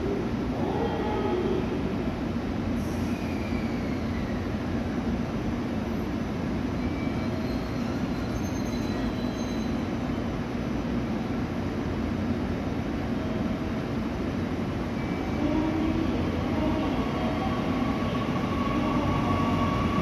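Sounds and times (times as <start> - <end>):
faint high squealing: 6.8 - 9.9
electric train humming: 13.1 - 20.0.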